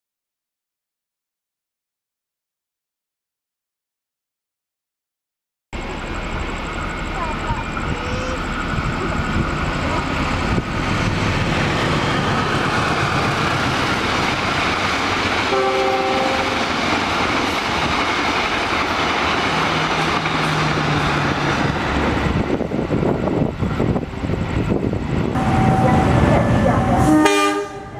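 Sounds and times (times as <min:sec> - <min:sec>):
train rumbling on rails: 0:05.8 - 0:27.9
train horn blast: 0:15.5 - 0:16.8, 0:25.4 - 0:27.9.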